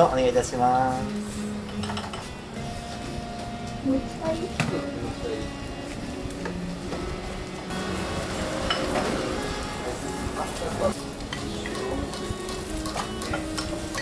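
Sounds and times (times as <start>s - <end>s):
food sizzling in a pan: 7.7s - 14.0s.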